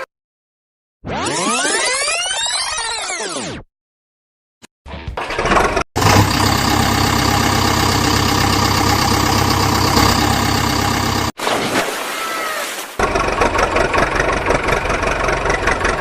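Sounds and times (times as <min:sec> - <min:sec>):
engine idling: 0:05.4 - 0:11.4, 0:13.0 - 0:16.0
quieter engine running: 0:06.0 - 0:11.4, 0:13.0 - 0:16.0.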